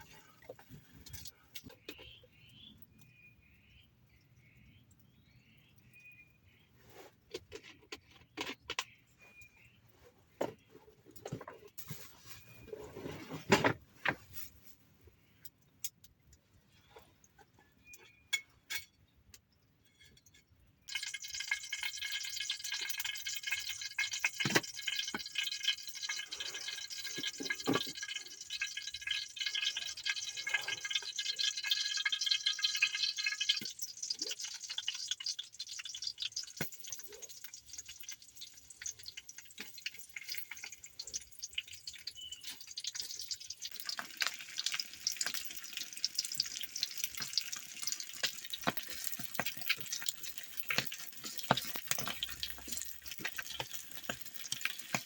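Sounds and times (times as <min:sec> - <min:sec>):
water drips ticking: 0:00.0 - 0:06.2, 0:20.8 - 0:55.0.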